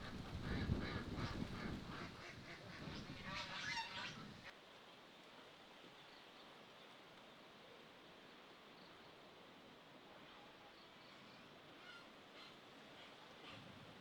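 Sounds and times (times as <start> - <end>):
waterfowl honking: 0.0 - 4.5.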